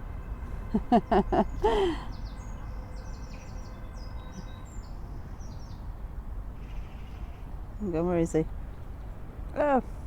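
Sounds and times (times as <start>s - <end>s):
small birds chirping and twittering: 1.5s - 6.0s.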